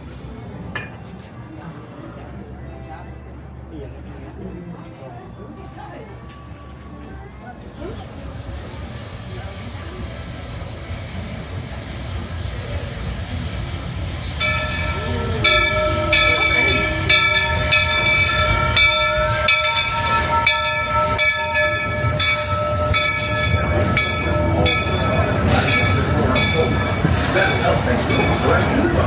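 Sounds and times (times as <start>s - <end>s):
steam train rumble: 6.1s - 29.0s
high steady multi-tone ringing: 14.4s - 29.0s.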